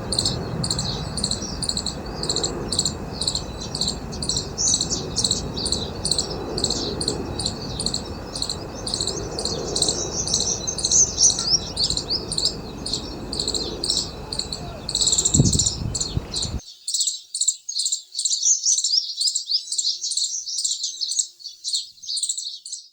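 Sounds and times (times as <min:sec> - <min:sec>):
low background rumble: 0:00.0 - 0:16.6
flock of birds chirping: 0:00.0 - 0:16.9.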